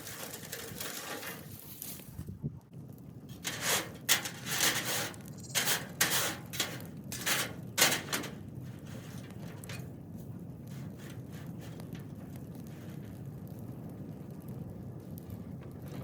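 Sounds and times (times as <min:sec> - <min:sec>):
dry brush rustling and scraping: 0:00.0 - 0:02.3.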